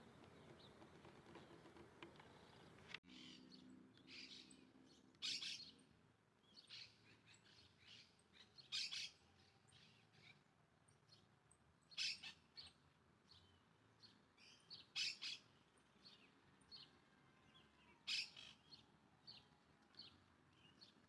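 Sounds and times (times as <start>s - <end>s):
birds chirping: 0.0s - 4.6s.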